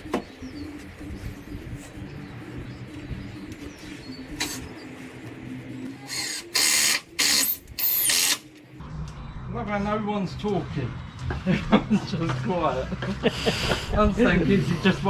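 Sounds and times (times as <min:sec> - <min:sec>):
drill driving screws into wood: 0:06.1 - 0:08.4.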